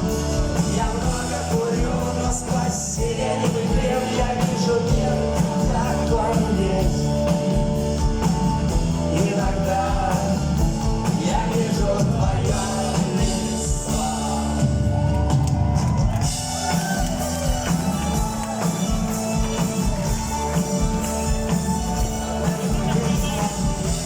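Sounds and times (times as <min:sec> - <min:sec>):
person singing: 0:00.0 - 0:07.6
live rock band playing: 0:00.0 - 0:24.0.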